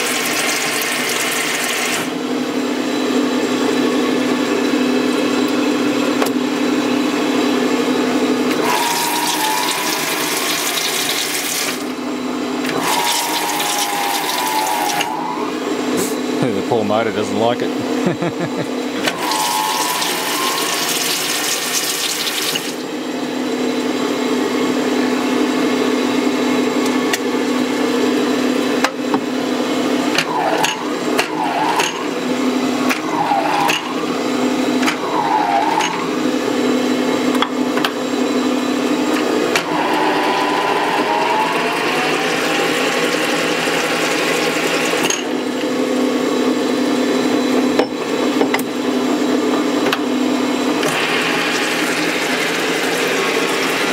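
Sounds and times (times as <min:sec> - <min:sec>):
lathe motor humming and straining: 0:00.0 - 0:53.9
hissing cutting noise with whine: 0:08.5 - 0:12.0, 0:12.6 - 0:17.8, 0:18.6 - 0:23.0, 0:39.5 - 0:45.0, 0:50.7 - 0:53.9.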